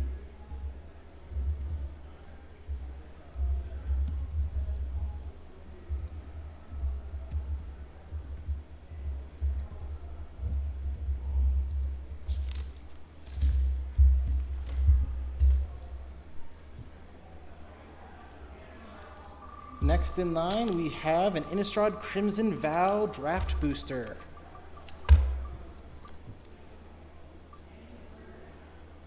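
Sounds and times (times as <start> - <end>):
typing on a keyboard: 0.5 - 15.8
background music: 19.0 - 26.3.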